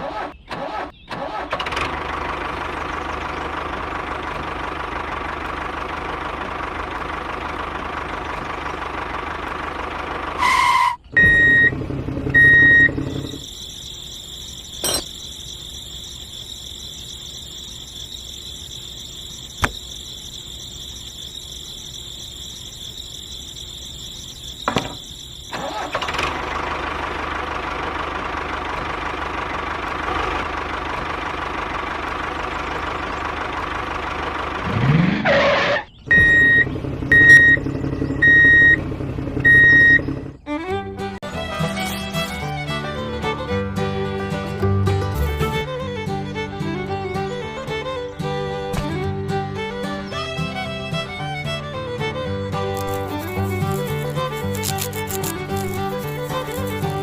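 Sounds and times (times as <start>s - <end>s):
short beeps: 11.1s - 11.8s, 12.4s - 26.0s, 36.1s - 37.6s, 38.2s - 38.8s, 39.5s - 40.0s
high-pitched whine: 12.4s - 26.0s
small motor running: 49.7s - 57.0s.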